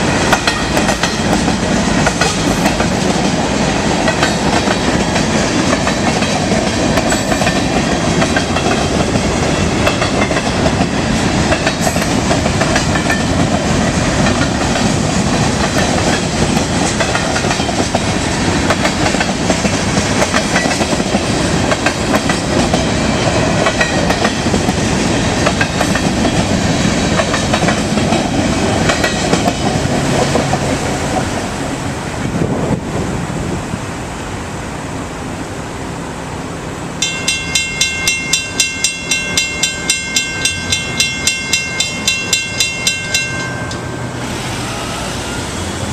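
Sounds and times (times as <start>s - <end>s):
train wheels clacking over rail joints: 0.0s - 31.5s.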